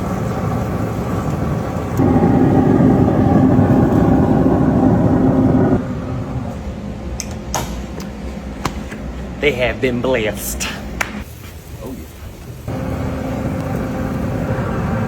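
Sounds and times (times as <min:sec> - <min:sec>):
motor-like hum: 0:02.0 - 0:09.4.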